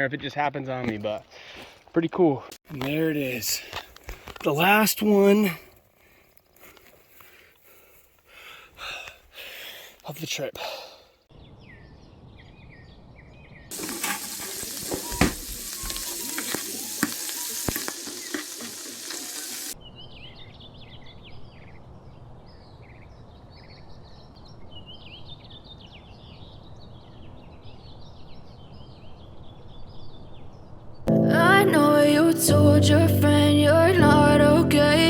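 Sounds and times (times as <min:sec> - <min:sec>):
birds chirping: 0:07.0 - 0:20.3
food sizzling in hot pan: 0:13.7 - 0:19.8.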